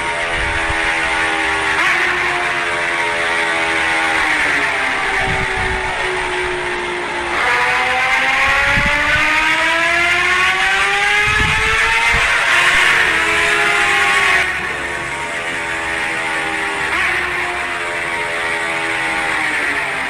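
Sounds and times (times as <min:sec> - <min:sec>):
wind rumble on microphone: 0:00.0 - 0:01.2, 0:05.0 - 0:07.1, 0:08.4 - 0:13.2
motorcycle engine accelerating: 0:00.0 - 0:20.0.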